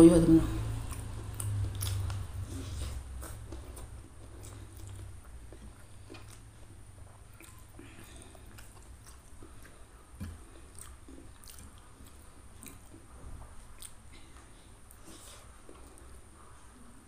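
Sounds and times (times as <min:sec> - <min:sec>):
steady low hum: 0:00.0 - 0:17.0
chewing food: 0:00.6 - 0:17.0
wet mouth clicks and smacks: 0:00.8 - 0:02.4, 0:07.3 - 0:13.0, 0:13.7 - 0:14.2.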